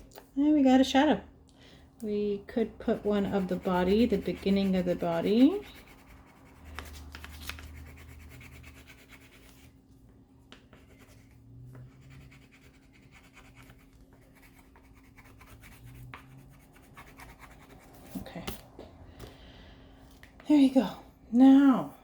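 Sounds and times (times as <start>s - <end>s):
faint steady hum: 0.0s - 22.0s
pencil scratching on paper: 2.6s - 9.7s, 10.7s - 18.3s.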